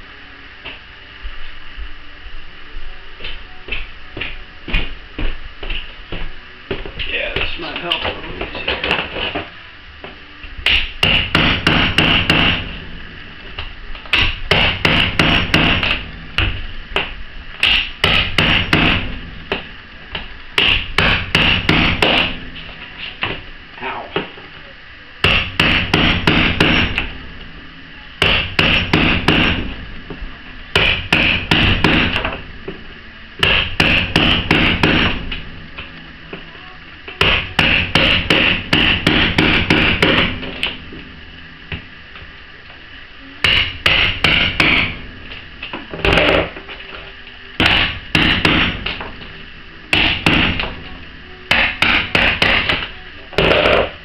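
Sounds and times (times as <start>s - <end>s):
hammer striking a chisel: 28.2s - 29.6s, 33.4s - 35.2s, 37.2s - 40.3s, 43.4s - 44.9s, 47.6s - 49.0s, 49.9s - 50.7s, 51.5s - 53.9s.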